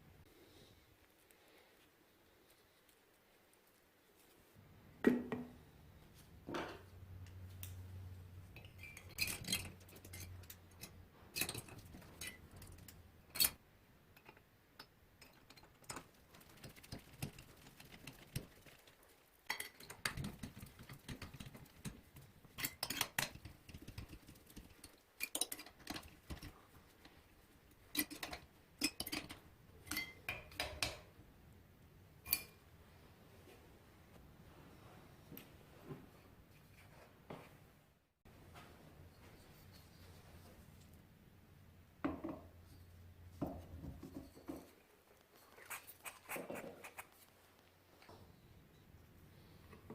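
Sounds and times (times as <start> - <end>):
metal parts and tools clinking: 8.6 - 13.6.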